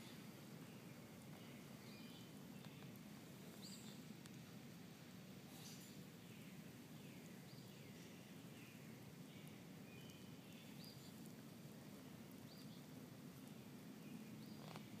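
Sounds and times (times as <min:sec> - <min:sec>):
faint birds chirping and whistling: 0:00.0 - 0:04.1, 0:05.4 - 0:15.0.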